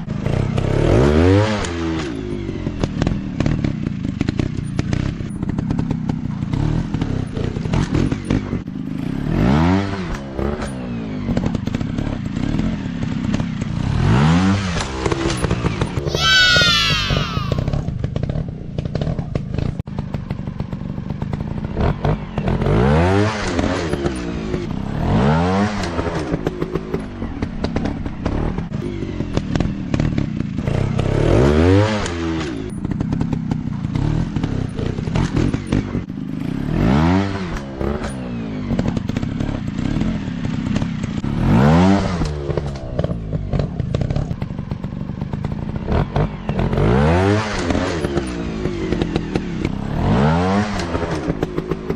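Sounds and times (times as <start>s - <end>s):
dirt bike engine revving: 45.9s - 51.9s.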